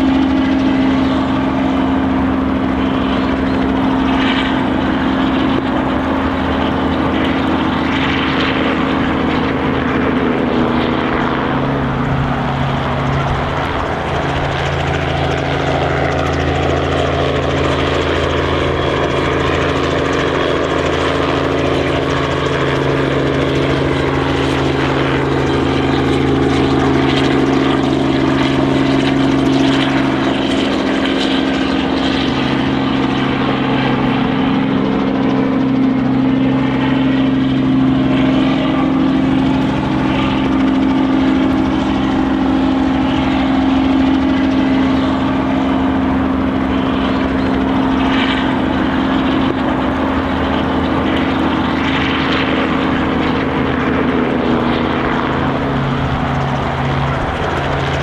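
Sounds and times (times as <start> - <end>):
road noise: 0.0 - 17.7, 31.4 - 58.0
heavy vehicle engines droning: 0.0 - 58.0
low hum: 0.0 - 58.0.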